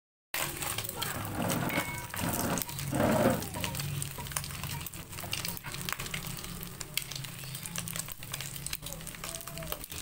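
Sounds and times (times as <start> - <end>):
wooden spatula stirring in pan: 0.4 - 6.3
egg sizzling and popping in oil: 0.4 - 10.0.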